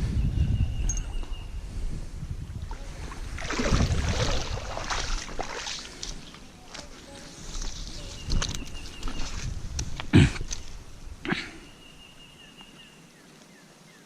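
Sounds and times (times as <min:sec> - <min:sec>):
wind rumbling on microphone: 0:00.0 - 0:12.3
water splashing: 0:02.5 - 0:07.8.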